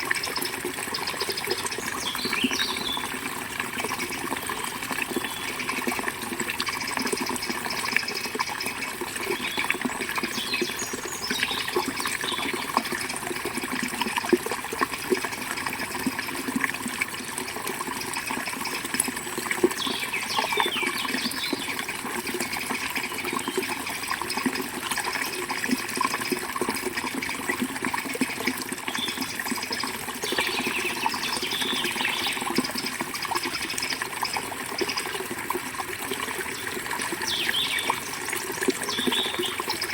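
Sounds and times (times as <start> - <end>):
small birds chirping: 0.3 - 3.2, 6.8 - 12.7, 18.6 - 21.8, 28.9 - 32.9, 36.5 - 38.2, 38.8 - 39.9.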